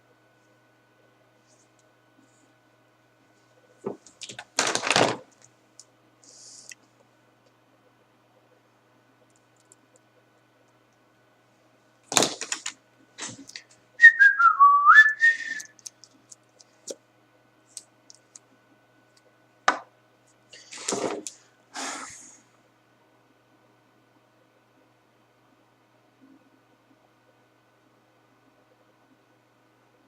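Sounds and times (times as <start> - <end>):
knocks and rustles of handling: 3.7 - 5.5
person whistling: 14.0 - 15.8.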